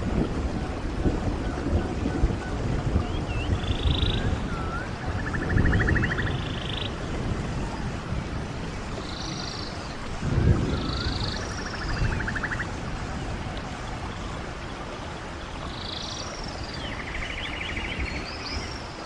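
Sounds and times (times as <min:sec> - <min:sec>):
stream running water: 0:00.0 - 0:19.0
bird singing with rattling trills: 0:03.0 - 0:07.1, 0:09.0 - 0:12.7, 0:15.6 - 0:19.0.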